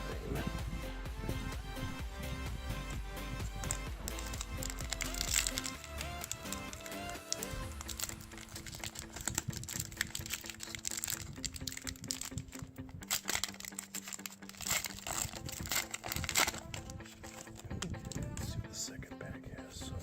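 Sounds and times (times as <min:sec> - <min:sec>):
background electronic music: 0:00.0 - 0:20.0
plastic wrapper crinkling: 0:03.4 - 0:18.5.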